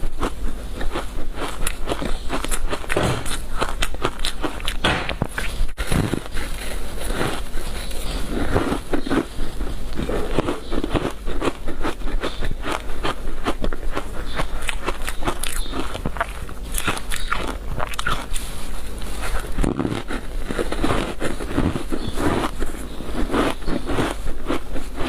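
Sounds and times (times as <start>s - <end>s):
ice being bitten and chewed: 0.0s - 4.8s, 5.4s - 25.0s.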